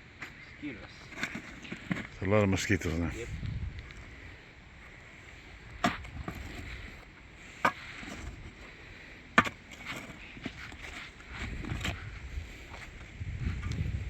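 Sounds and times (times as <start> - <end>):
shovel striking wet soil: 9.4 - 10.2.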